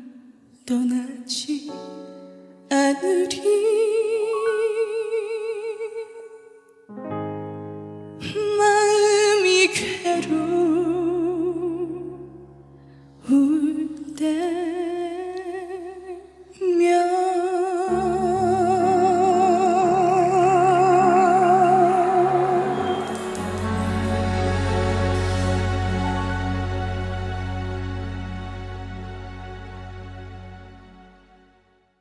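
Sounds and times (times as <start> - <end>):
woman singing a slow ballad: 0.0 - 6.6, 8.2 - 12.5, 13.2 - 26.0
piano and keyboard accompaniment: 1.5 - 31.8.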